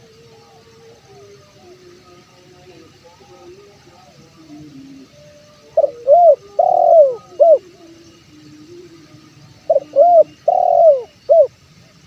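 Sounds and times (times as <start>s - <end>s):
dove cooing: 0.0s - 11.5s.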